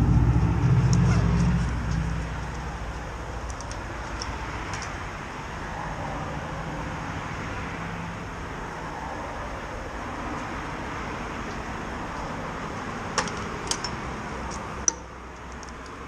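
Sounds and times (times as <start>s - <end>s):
low motorcycle engine hum: 0.0s - 3.6s
wind and road noise: 0.0s - 16.0s.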